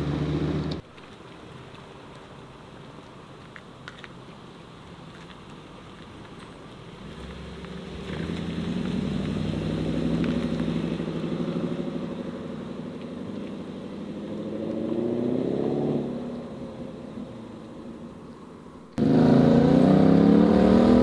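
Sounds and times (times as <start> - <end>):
car engine pulling away: 0.0 - 0.8, 6.9 - 21.0.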